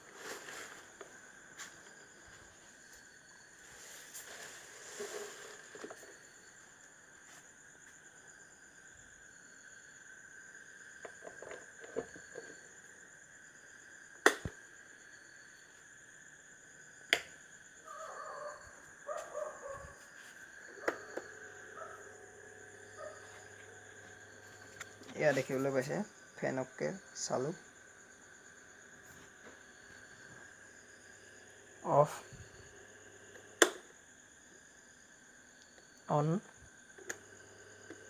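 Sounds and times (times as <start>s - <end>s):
insect chirping: 0.0s - 38.0s.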